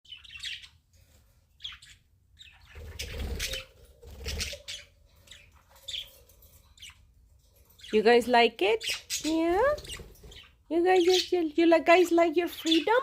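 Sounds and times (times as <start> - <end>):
budgerigars chirping: 0.1 - 0.8, 1.6 - 7.0, 8.7 - 11.4.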